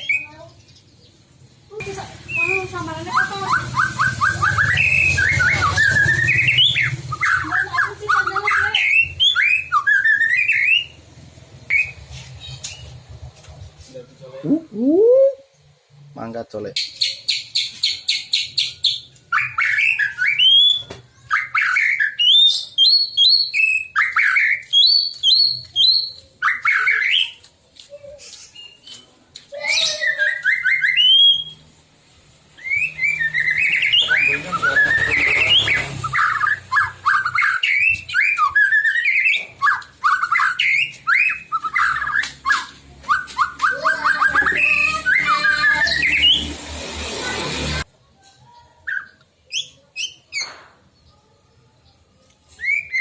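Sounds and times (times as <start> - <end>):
songbird singing whistles: 2.3 - 11.0, 11.7 - 13.0, 16.8 - 27.5, 28.6 - 31.7, 32.6 - 46.5, 52.5 - 53.0.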